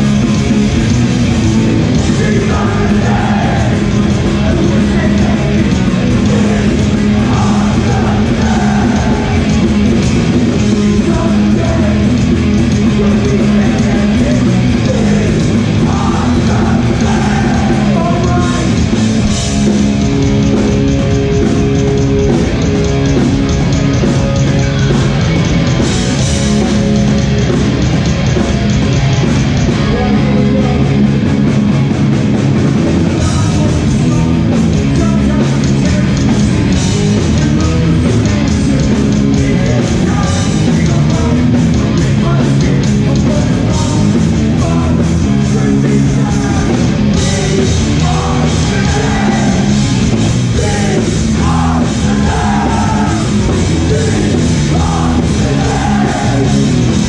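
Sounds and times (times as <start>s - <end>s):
punk band playing: 0.0s - 57.0s
shouted vocals: 2.0s - 9.6s, 13.6s - 18.8s, 46.2s - 57.0s.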